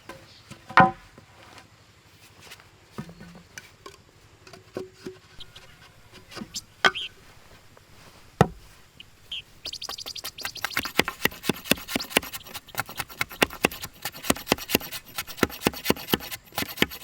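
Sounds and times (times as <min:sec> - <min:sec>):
high chirps: 0:05.4 - 0:07.3, 0:08.9 - 0:11.1
light taps and knocks: 0:08.4 - 0:08.9.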